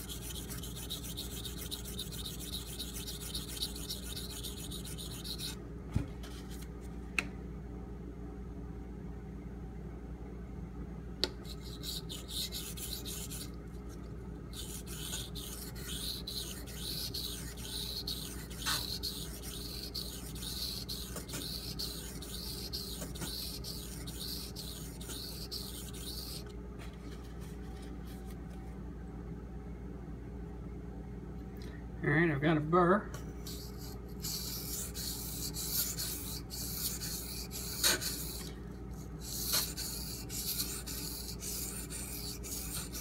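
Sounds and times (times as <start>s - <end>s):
knife scraping on whetstone: 0.0s - 5.6s, 14.6s - 26.4s, 33.5s - 38.5s.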